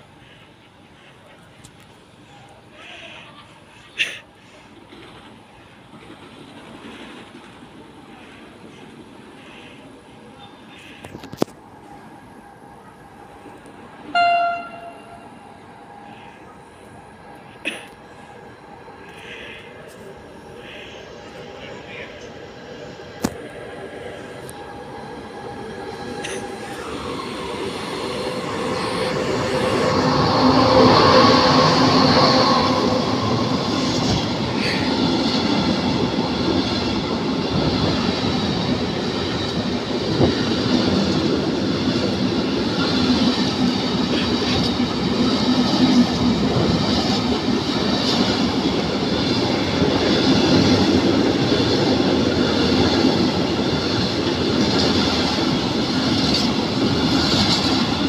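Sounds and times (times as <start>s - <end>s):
train wheels on rails: 3.8s - 58.0s
electric locomotive tone: 11.2s - 17.2s, 19.8s - 58.0s.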